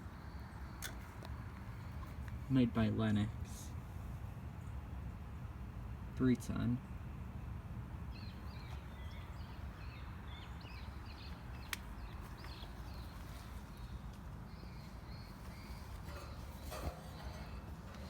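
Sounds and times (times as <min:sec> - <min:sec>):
low outdoor rumble: 0:00.0 - 0:18.0
small birds chirping: 0:06.7 - 0:18.0.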